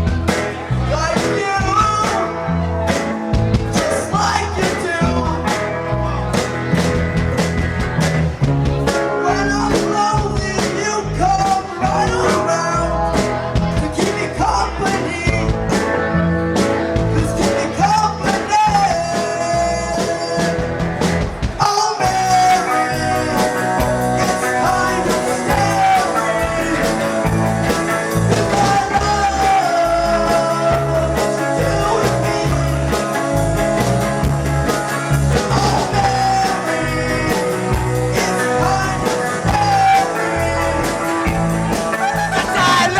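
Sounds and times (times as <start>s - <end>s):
person singing: 0.0s - 6.8s, 8.7s - 42.9s
electric guitars: 0.0s - 42.9s
rock band playing: 0.0s - 42.9s.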